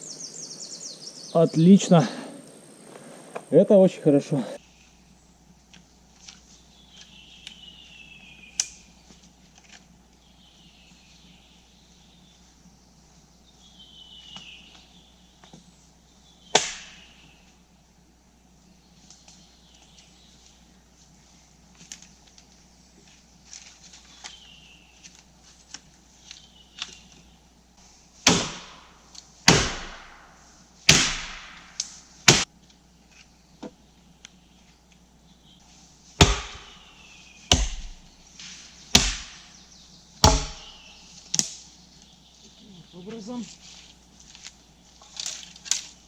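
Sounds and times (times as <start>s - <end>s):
blade chopping wood: 16.6s - 17.1s, 28.2s - 28.9s, 29.5s - 30.2s, 30.9s - 32.5s, 36.2s - 36.8s, 37.5s - 39.5s, 40.2s - 41.6s.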